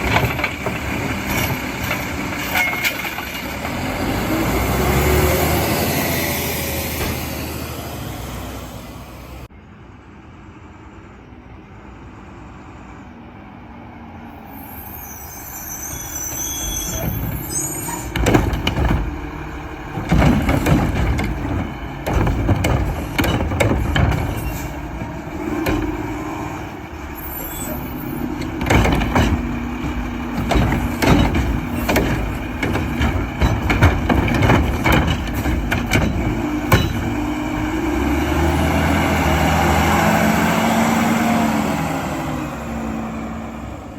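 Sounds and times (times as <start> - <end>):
metal clanks and bangs: 0.0 - 5.0, 16.8 - 38.7
diesel engine under load: 0.0 - 43.9.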